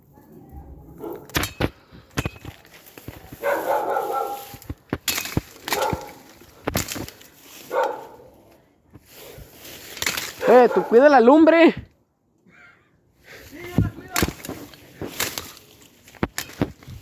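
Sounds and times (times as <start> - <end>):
dog barking: 1.0 - 1.3, 3.4 - 4.6, 5.7 - 6.2, 7.7 - 8.4, 10.4 - 11.1
sharp cracks and snaps: 4.4 - 8.0, 9.8 - 10.6, 13.7 - 17.0.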